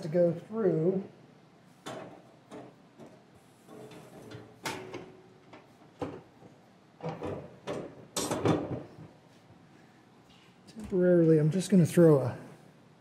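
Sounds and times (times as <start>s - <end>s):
metal clanks and scrapes: 1.8s - 6.2s, 7.0s - 8.9s.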